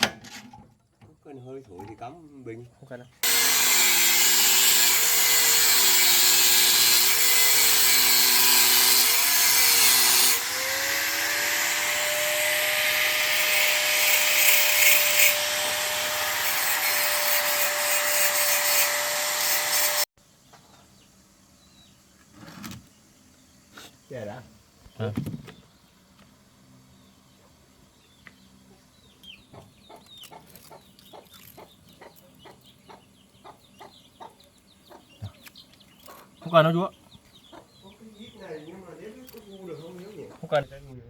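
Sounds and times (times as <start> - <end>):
electric power tool whining: 3.2 - 20.1.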